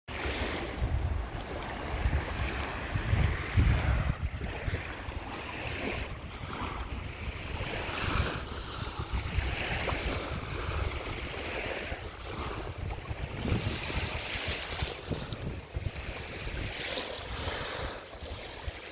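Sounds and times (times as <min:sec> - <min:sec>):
ocean surf breaking: 0:00.1 - 0:18.9
wind buffeting microphone: 0:00.1 - 0:18.9.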